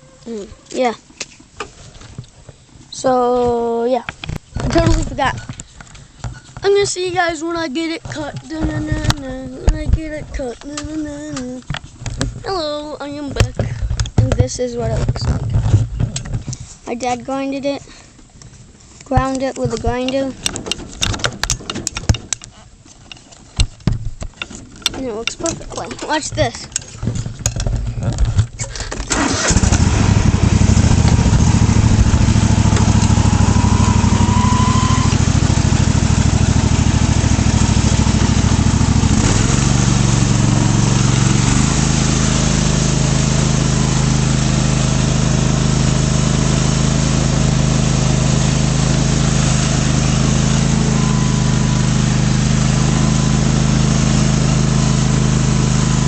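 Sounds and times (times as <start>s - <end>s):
lawn tractor engine starting: 28.4s - 56.0s.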